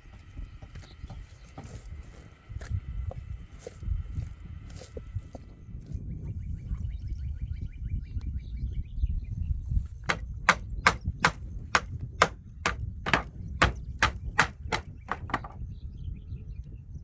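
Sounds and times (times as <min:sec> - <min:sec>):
hammer hitting wooden planks: 0:10.1 - 0:15.6.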